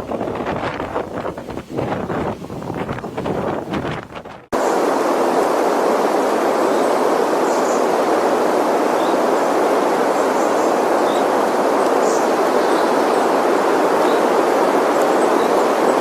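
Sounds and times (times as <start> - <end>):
strong wind roaring: 0.0 - 16.0.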